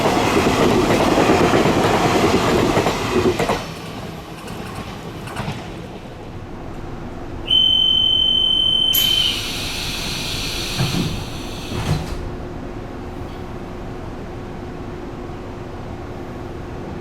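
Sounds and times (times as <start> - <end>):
high warning beep: 7.5 - 9.8
train doors closing with air hiss: 7.5 - 12.5.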